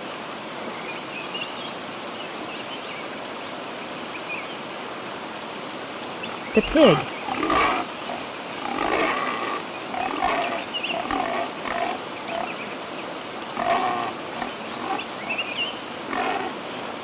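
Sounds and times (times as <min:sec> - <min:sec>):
pig grunting and oinking: 0:06.6 - 0:12.6, 0:13.5 - 0:15.1, 0:16.1 - 0:16.6.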